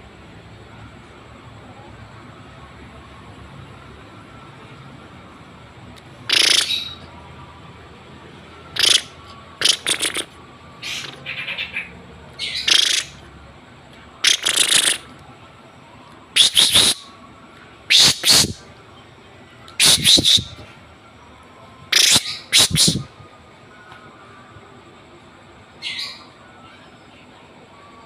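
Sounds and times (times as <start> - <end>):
birds giving harsh calls: 6.3 - 7.0, 8.7 - 13.2, 14.2 - 15.0, 16.4 - 17.1, 17.9 - 18.6, 19.8 - 20.6, 21.9 - 23.1.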